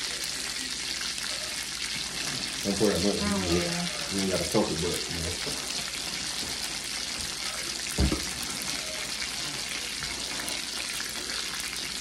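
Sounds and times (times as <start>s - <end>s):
patties sizzling in a frying pan: 0.0s - 12.0s
brief thump: 8.0s - 8.3s.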